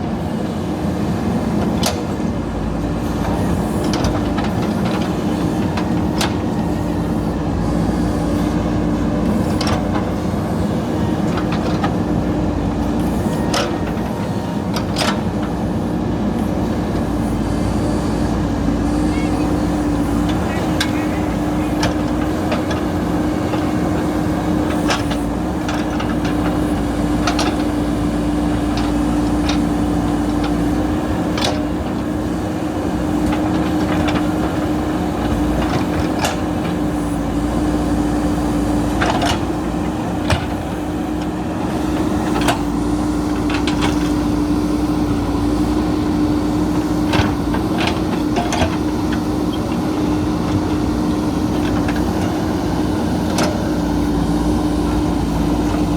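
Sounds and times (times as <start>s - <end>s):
diesel engine droning: 0.0s - 55.9s.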